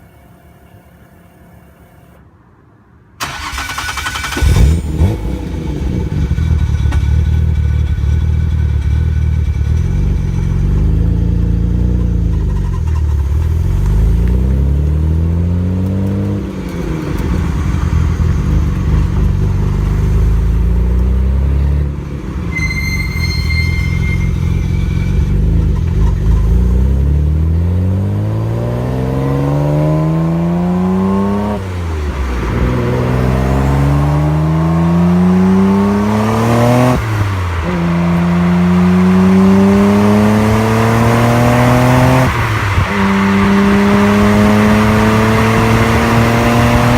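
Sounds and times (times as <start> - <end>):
car exhaust revving: 3.2 - 46.9
high turbo whistle: 22.3 - 25.6.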